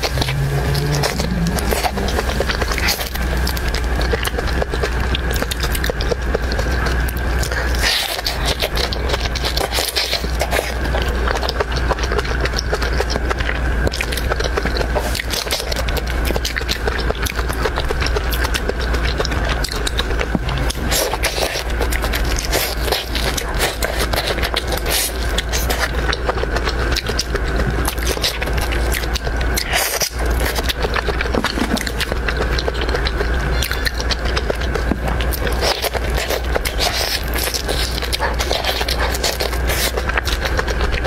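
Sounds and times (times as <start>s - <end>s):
crunchy wet chewing: 0.0s - 41.0s
steady low hum: 0.0s - 41.0s.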